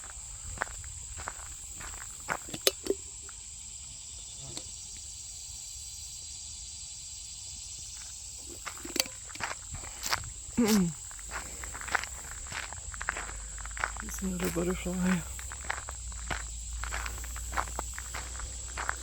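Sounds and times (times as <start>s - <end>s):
footsteps on gravel: 0.0s - 3.0s, 8.0s - 19.0s
insects droning: 0.0s - 19.0s.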